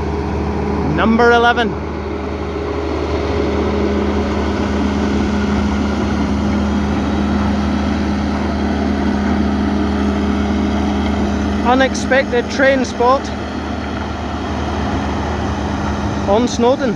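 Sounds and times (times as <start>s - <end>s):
train engine rumbling: 0.0s - 16.9s.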